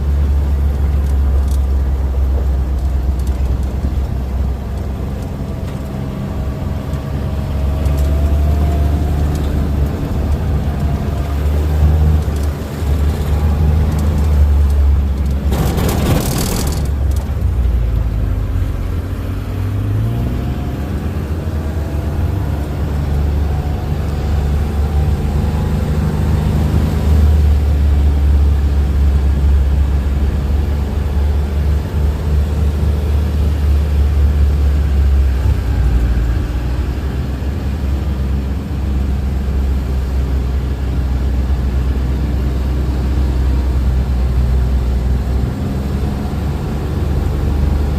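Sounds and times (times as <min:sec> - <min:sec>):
motor vehicle engine rumble: 0:00.0 - 0:47.9
loud rush of noise: 0:08.4 - 0:18.9.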